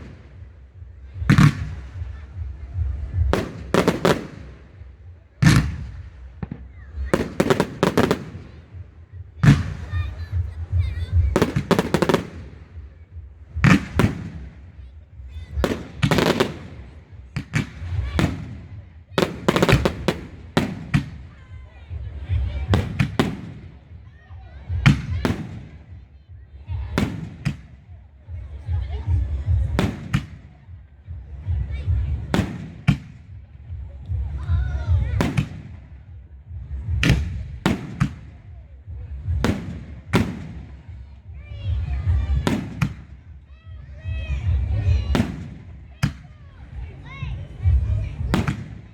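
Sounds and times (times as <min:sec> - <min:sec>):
steady low rumble: 0:00.0 - 0:24.0, 0:24.6 - 0:48.9
fireworks bangs and crackles: 0:00.0 - 0:48.9
fireworks bangs: 0:01.2 - 0:08.7, 0:09.4 - 0:12.9, 0:13.6 - 0:21.3, 0:39.2 - 0:41.2, 0:41.8 - 0:43.2, 0:44.4 - 0:46.3.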